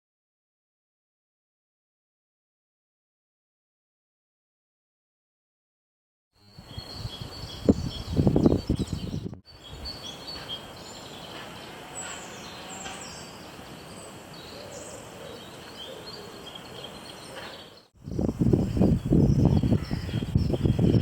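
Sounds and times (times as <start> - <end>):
steady outdoor hiss: 6.4 - 21.0
birds chirping and singing: 6.5 - 21.0.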